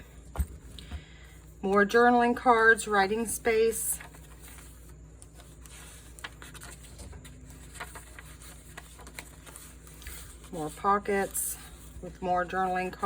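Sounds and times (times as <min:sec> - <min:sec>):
low steady hum: 0:00.0 - 0:13.0
paper pages turning: 0:03.9 - 0:13.0.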